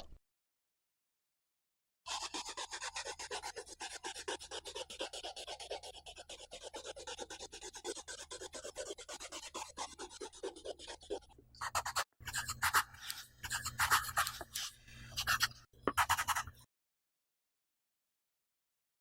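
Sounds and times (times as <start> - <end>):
rapid scratching strokes: 2.1 - 16.6.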